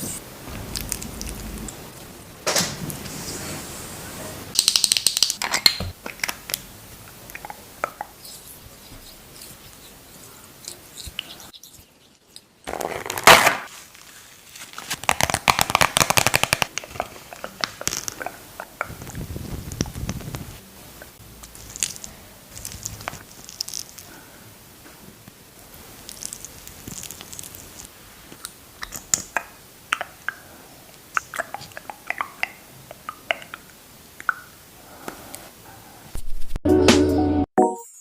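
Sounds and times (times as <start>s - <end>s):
loud packaging rustle: 12.7s - 18.1s.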